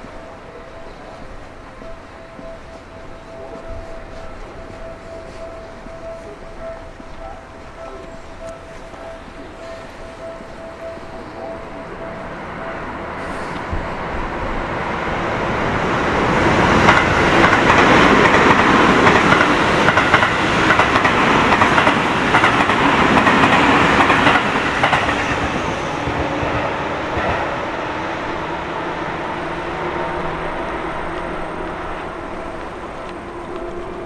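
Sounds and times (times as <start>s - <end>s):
train wheels clattering over rails: 16.1s - 28.0s.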